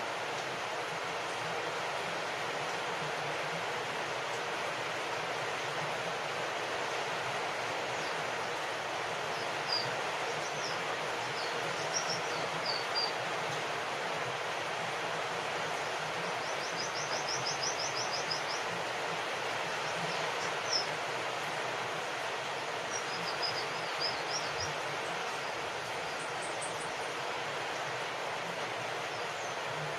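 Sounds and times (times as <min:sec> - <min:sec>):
steady rain falling: 0:00.0 - 0:29.9
small birds chirping: 0:07.8 - 0:13.3, 0:15.7 - 0:21.0, 0:22.5 - 0:29.9.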